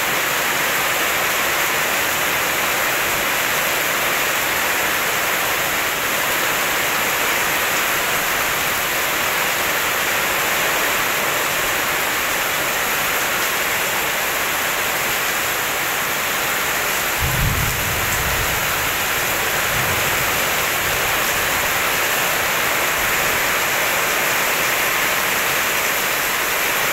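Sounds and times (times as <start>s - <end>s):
steady rain: 0.0s - 26.9s
thunder rumbling: 17.0s - 21.8s.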